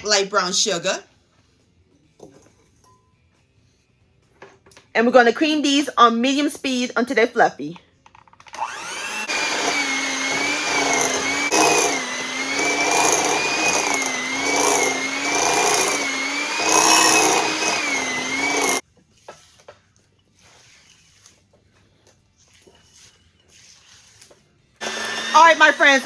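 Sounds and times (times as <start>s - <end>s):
electric hand mixer whining: 8.6s - 18.8s, 24.8s - 26.0s.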